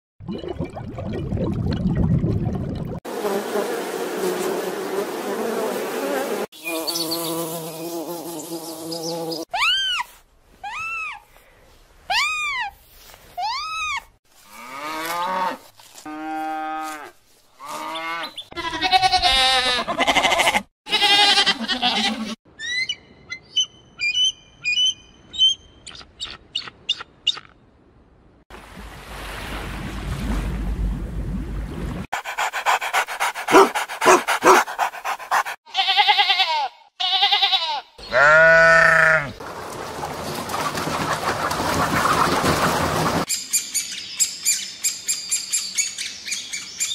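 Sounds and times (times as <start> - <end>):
bleat-like animal calls: 17.6 - 22.4, 35.7 - 39.4.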